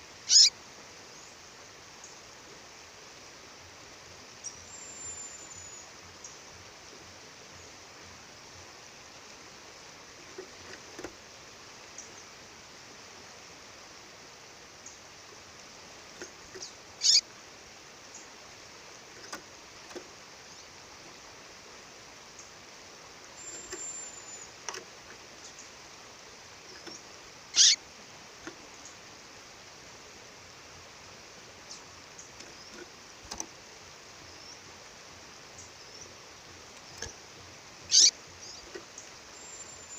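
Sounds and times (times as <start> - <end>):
songbird cheeping: 0.2 - 0.5, 4.4 - 6.4, 16.6 - 17.3, 23.4 - 24.6, 26.6 - 27.8, 37.8 - 39.9.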